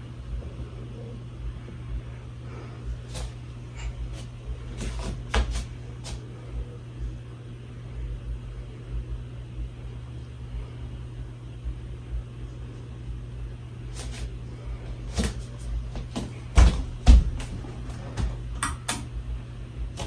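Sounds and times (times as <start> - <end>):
ceiling fan motor hum: 0.0 - 20.0.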